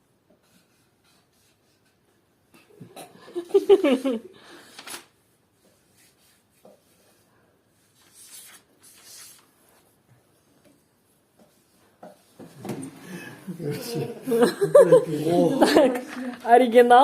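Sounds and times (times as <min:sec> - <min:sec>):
pencil scratching on paper: 0:00.4 - 0:02.1.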